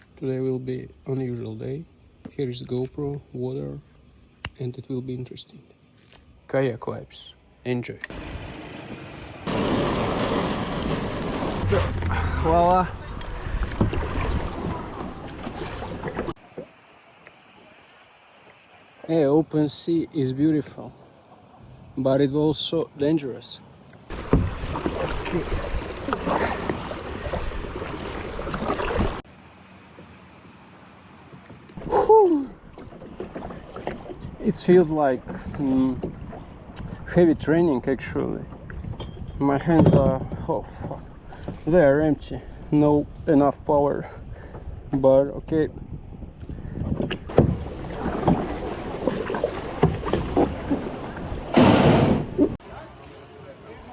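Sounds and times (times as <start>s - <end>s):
hiss of wind and sea: 8.1s - 16.0s, 24.1s - 29.6s, 47.5s - 53.9s
wind rumbling on microphone: 8.1s - 16.4s, 31.8s - 52.6s
water splashing around kayak: 8.1s - 18.7s, 24.1s - 29.3s, 31.7s - 37.7s, 38.3s - 43.4s, 45.8s - 53.9s.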